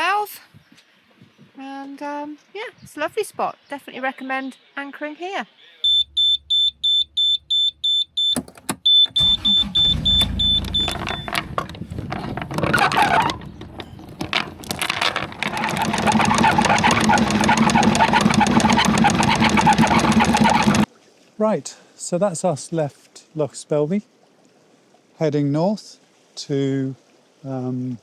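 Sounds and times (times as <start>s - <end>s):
warning buzzer beeping: 5.8s - 11.7s
boat engine running: 5.9s - 20.9s
engine cranking and starting: 5.9s - 20.9s.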